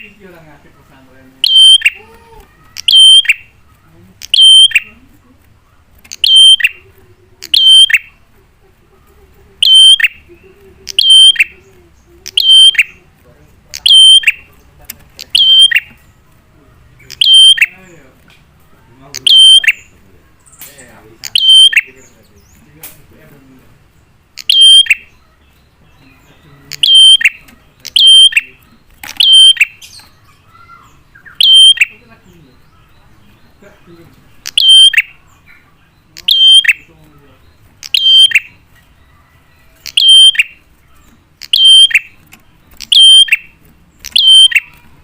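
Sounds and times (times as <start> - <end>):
bird call notes: 1.4 - 2.0, 2.6 - 5.0, 5.8 - 8.2, 9.6 - 13.0, 13.7 - 14.6, 15.2 - 16.1, 17.0 - 17.9, 19.1 - 22.2, 24.3 - 33.5, 34.4 - 38.6, 39.7 - 44.9.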